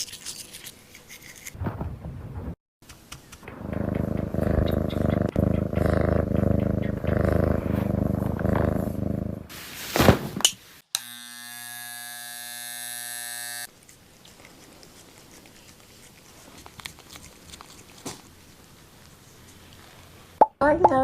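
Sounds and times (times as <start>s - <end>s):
cat purring: 3.4s - 9.5s
electric buzz: 10.9s - 13.7s.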